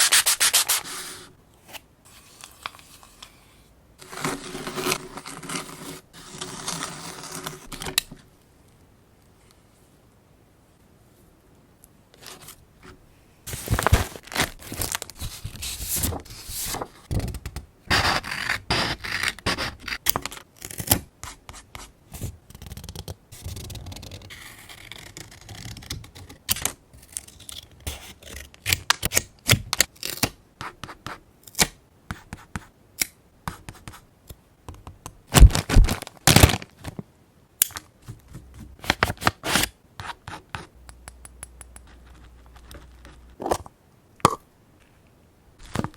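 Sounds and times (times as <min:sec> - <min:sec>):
paper crinkling and rustling: 0:13.5 - 0:17.4, 0:35.4 - 0:37.0.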